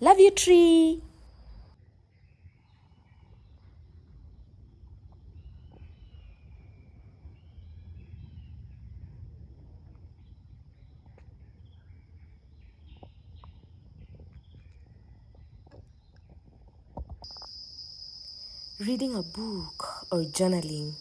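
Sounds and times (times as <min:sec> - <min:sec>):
high insect drone: 0:17.3 - 0:21.0.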